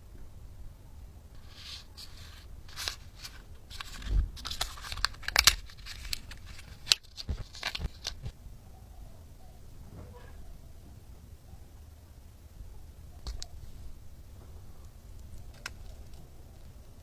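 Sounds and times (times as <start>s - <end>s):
packaging crinkling and tearing: 1.4s - 8.3s.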